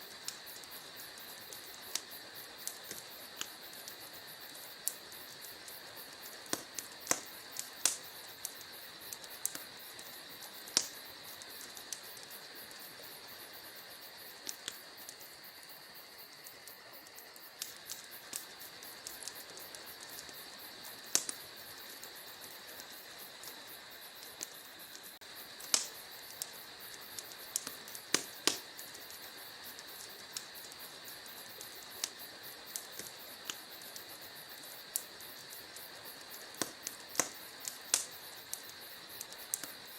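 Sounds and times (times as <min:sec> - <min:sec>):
fire soft hiss: 0:00.0 - 0:39.9
wood fire crackling and popping: 0:00.0 - 0:39.9.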